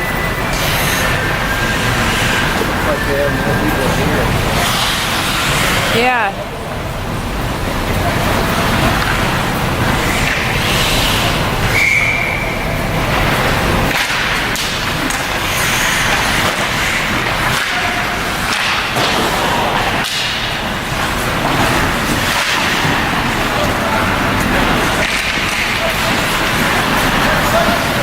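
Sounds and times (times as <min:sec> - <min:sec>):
low rumble of ice rink: 0:00.0 - 0:28.0
hockey sticks and puck knocking: 0:13.1 - 0:28.0.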